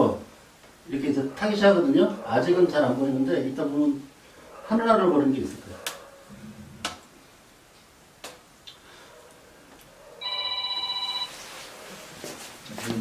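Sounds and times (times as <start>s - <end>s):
phone ringing: 10.2s - 11.5s.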